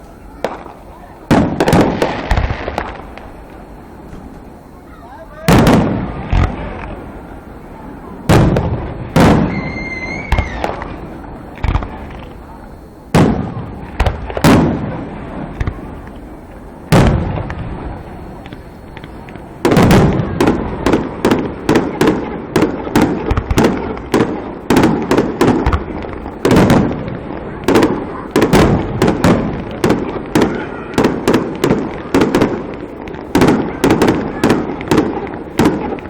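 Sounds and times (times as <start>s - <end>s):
fireworks booming: 0.0s - 36.0s
firework whistle: 8.4s - 11.6s.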